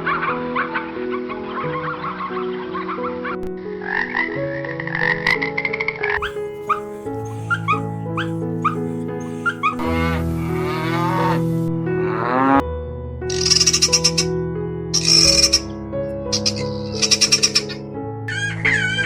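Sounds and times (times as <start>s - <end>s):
short animal calls: 6.2s - 11.4s
background music: 6.2s - 19.0s.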